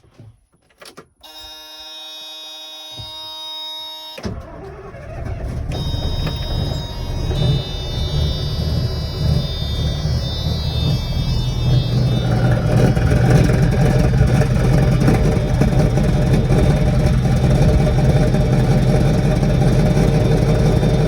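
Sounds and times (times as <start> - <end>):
starter motor whine: 1.3 - 21.0
diesel engine rumbling: 4.3 - 21.0.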